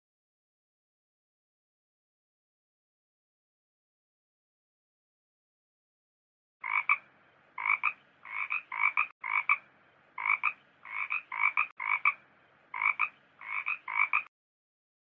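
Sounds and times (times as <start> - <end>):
frog croaking: 6.6 - 14.3.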